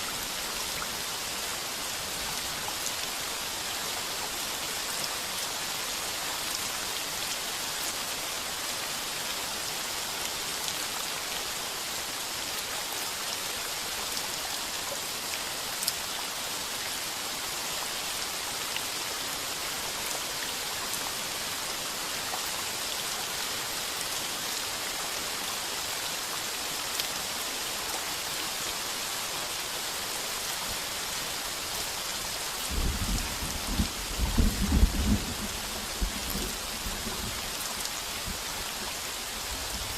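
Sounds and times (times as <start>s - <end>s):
heavy rain on a tin roof: 0.0s - 39.9s
low rumble of thunder: 32.7s - 37.4s.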